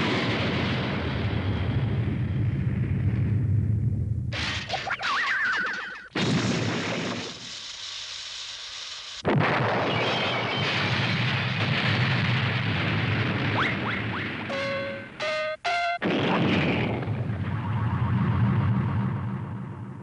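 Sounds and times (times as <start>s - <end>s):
explosion blasts rumbling: 9.3s - 20.0s
short tone: 14.5s - 16.0s.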